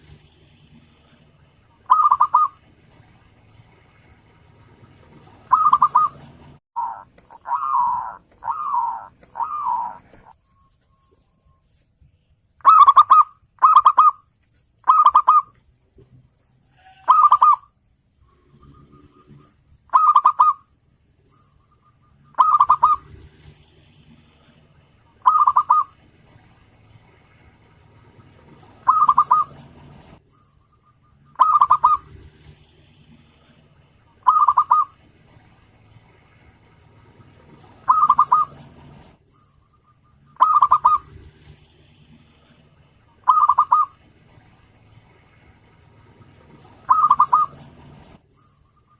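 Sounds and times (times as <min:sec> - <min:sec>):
dove cooing: 0:01.8 - 0:02.7, 0:05.1 - 0:10.3, 0:12.6 - 0:14.2, 0:14.8 - 0:15.5, 0:16.8 - 0:17.7, 0:18.6 - 0:20.6, 0:21.4 - 0:23.5, 0:25.2 - 0:26.0, 0:28.4 - 0:30.1, 0:31.3 - 0:32.2, 0:34.2 - 0:35.1, 0:37.5 - 0:39.0, 0:40.2 - 0:41.2, 0:43.2 - 0:44.1, 0:46.4 - 0:48.1.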